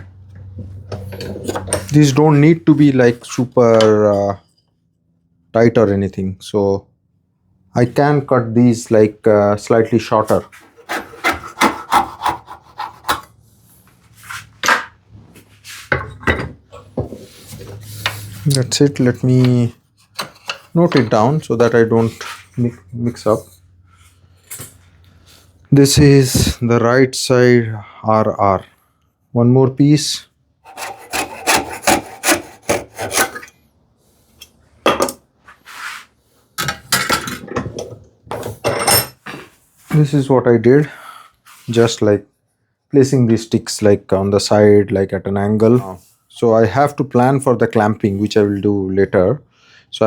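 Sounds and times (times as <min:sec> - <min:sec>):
hand saw cutting wood: 0:10.4 - 0:13.4, 0:30.6 - 0:33.5.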